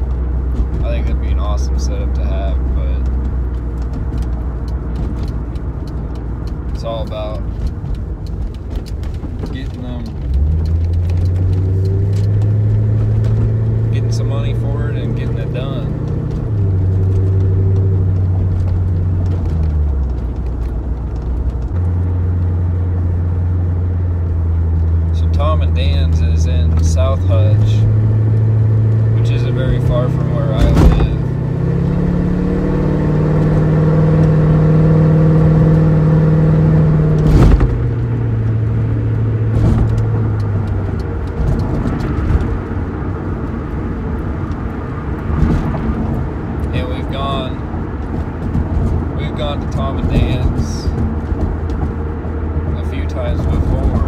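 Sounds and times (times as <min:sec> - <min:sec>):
car engine drone from cabin: 0:00.0 - 0:54.0
road noise: 0:00.0 - 0:54.0.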